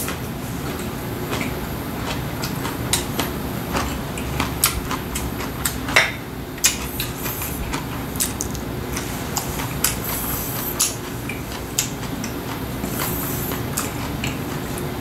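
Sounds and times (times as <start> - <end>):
person chewing: 6.6 - 14.9.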